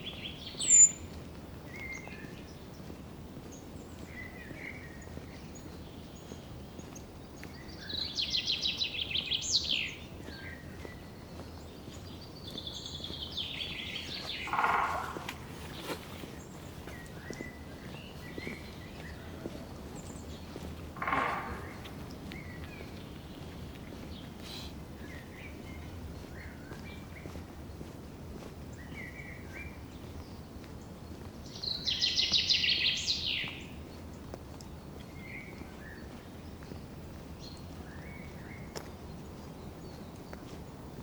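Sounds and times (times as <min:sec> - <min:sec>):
birds chirping: 0:00.0 - 0:28.0, 0:28.7 - 0:41.0
bird rapid trill: 0:14.4 - 0:15.8.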